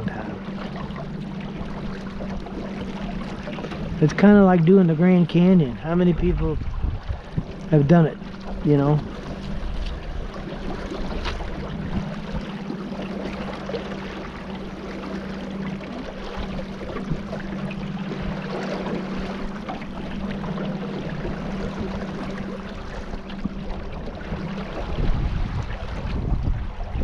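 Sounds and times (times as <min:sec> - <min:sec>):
boat motor humming: 0:00.0 - 0:27.0
rushing water: 0:00.0 - 0:27.0
wind noise: 0:05.7 - 0:07.9, 0:24.3 - 0:27.0.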